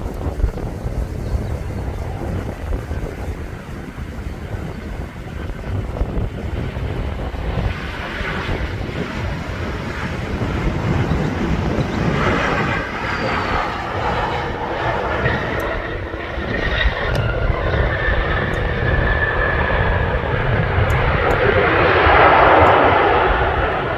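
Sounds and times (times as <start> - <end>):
jet engine whine: 0.0 - 23.9
jet engines rumbling: 0.0 - 23.9.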